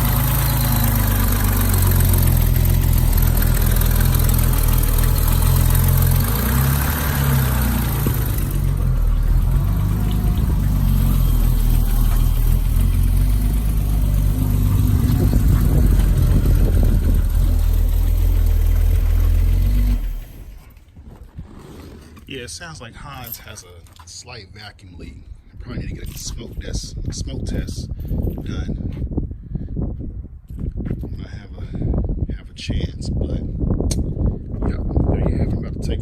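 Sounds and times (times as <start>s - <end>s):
car engine idling: 0.0s - 20.8s.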